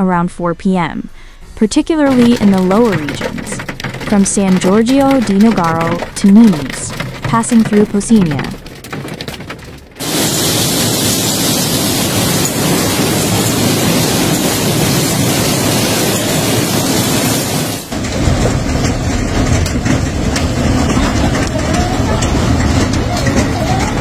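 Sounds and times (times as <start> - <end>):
hail pelting down: 2.1 - 24.0
rumbling storm noise: 2.1 - 24.0.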